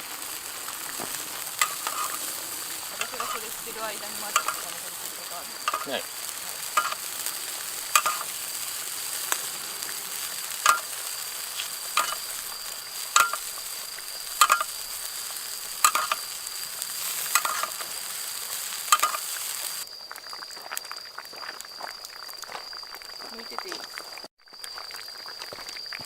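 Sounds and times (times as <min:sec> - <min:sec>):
fish sizzling in a pot: 0:00.0 - 0:26.0.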